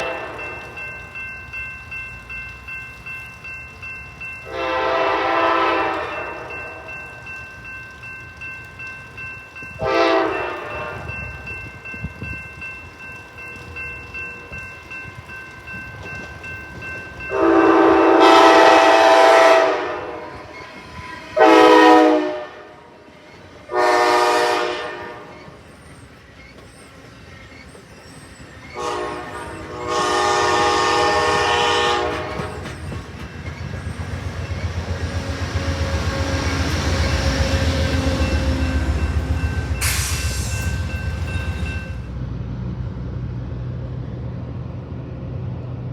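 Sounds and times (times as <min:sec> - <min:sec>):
train horn blasts: 0:00.0 - 0:00.8, 0:04.4 - 0:07.0, 0:09.8 - 0:11.5, 0:17.3 - 0:20.6, 0:21.3 - 0:23.1, 0:23.7 - 0:25.6, 0:28.8 - 0:32.8
train wheel clatter: 0:00.0 - 0:19.0, 0:23.1 - 0:42.2
train rumble: 0:00.0 - 0:45.9.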